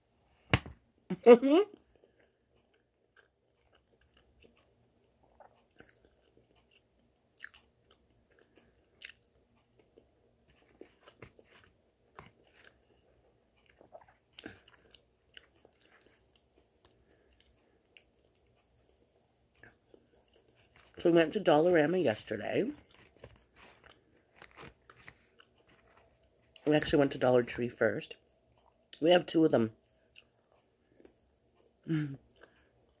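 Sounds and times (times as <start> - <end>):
person chewing: 1.7 - 21.0, 22.8 - 26.7, 30.0 - 33.0.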